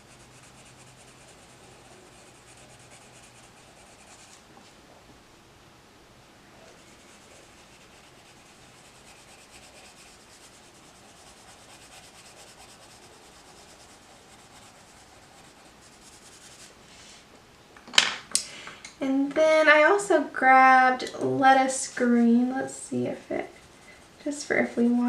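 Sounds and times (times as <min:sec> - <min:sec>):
pencil scratching on paper: 0:00.0 - 0:04.4, 0:06.7 - 0:16.7.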